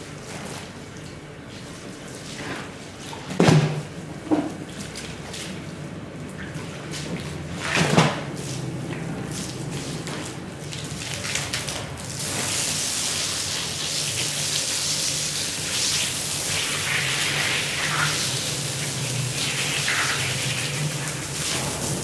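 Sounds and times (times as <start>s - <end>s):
water spraying onto rug: 8.3s - 22.0s.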